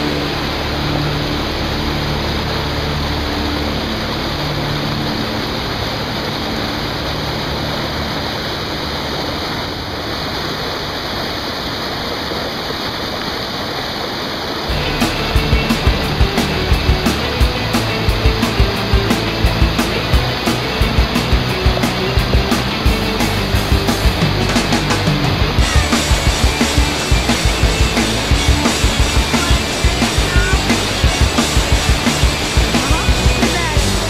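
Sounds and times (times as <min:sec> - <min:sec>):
whitewater river rushing: 0:00.0 - 0:34.0
regular beat sound: 0:14.7 - 0:34.0.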